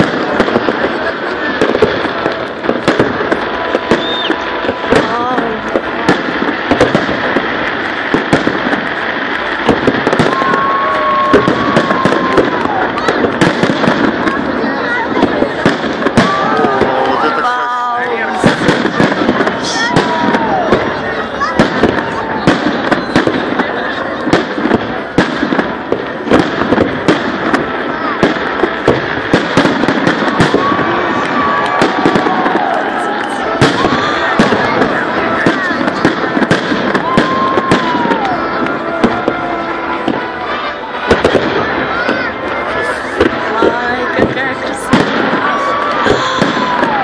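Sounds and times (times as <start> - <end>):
fireworks shells bursting: 0.0 - 17.5
fireworks bangs and crackling: 0.0 - 47.0
voices of onlookers: 0.0 - 47.0
steady whistle-like tone: 3.9 - 4.5.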